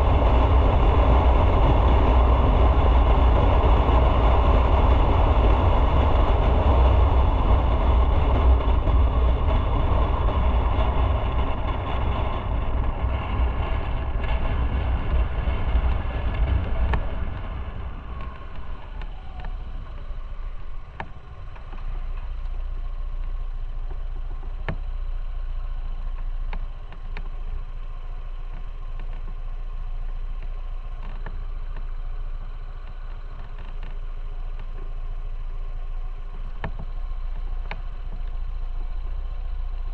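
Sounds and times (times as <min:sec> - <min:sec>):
wind noise: 0:00.0 - 0:22.6
motorcycle engine hum: 0:00.0 - 0:39.9
road rumble: 0:00.0 - 0:39.9.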